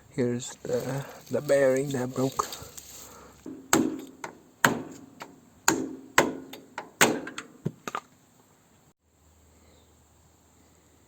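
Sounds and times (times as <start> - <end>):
hammer striking metal: 3.5 - 7.5.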